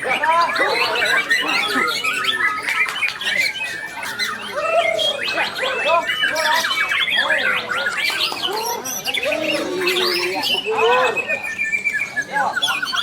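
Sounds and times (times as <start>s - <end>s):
songbirds singing overlapping: 0.0s - 13.0s.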